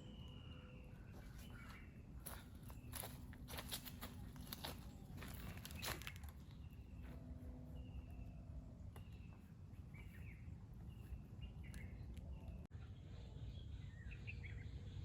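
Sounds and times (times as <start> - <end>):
birds whistling and chirping: 0.0 - 15.0
low steady rumble: 0.0 - 15.0
footsteps: 1.1 - 7.3.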